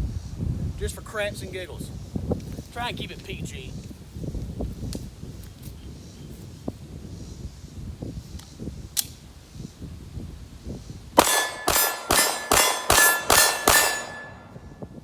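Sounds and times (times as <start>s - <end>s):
pistol shots with metallic ring: 11.2s - 14.7s.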